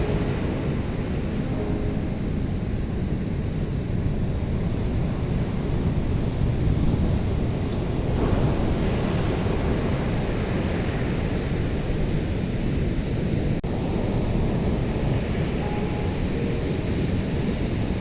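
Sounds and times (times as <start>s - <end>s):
waves breaking: 0.0s - 18.0s.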